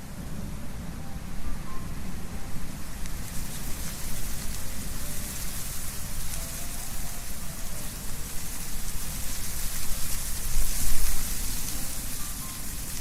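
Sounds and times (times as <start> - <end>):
wind rustling leaves: 0.0 - 13.0.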